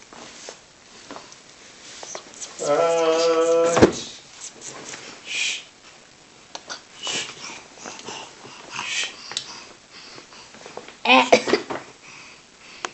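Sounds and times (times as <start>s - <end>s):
baby vocal sound: 2.4s - 4.2s.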